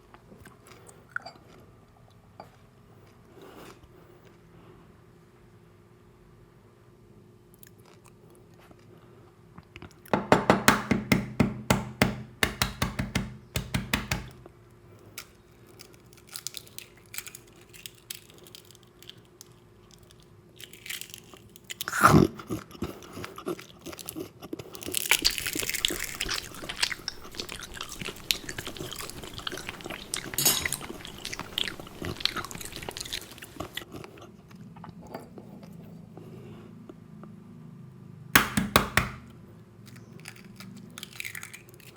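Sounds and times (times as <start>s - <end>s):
crunching bites: 15.0s - 34.2s, 39.9s - 41.9s
wet chewing: 15.0s - 35.0s.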